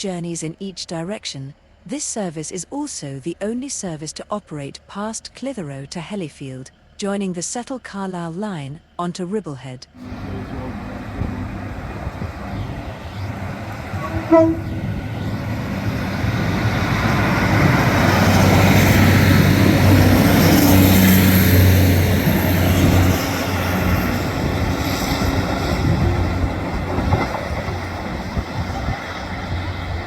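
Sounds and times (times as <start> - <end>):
train engine and rail noise: 10.0 - 30.0
train horn toot: 13.9 - 15.4.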